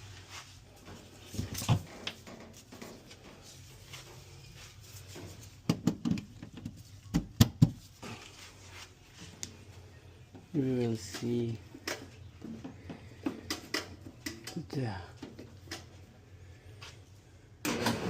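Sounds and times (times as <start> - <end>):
sharp knocks and clunks: 5.6 - 7.8.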